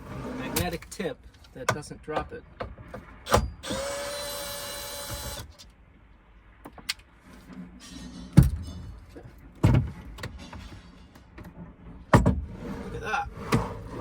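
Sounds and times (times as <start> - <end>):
cordless drill whirring: 3.6 - 5.6
tools clunking and knocking: 6.7 - 12.5.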